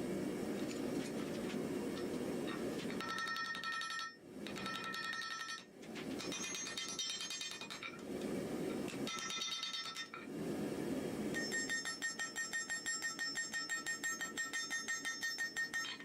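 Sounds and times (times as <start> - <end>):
hammer striking metal: 11.4 - 16.0.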